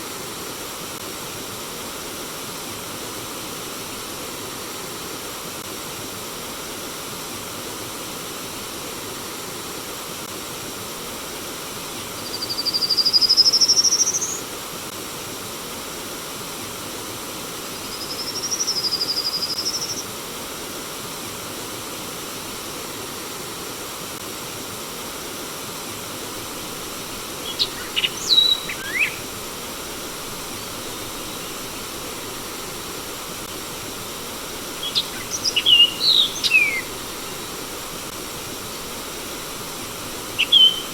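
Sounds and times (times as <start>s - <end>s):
stream water flowing: 21.4s - 40.9s
bird whistling: 27.4s - 29.3s, 34.8s - 37.5s, 40.4s - 40.9s
quick bird chirps: 27.4s - 29.3s, 34.8s - 37.5s, 40.4s - 40.9s.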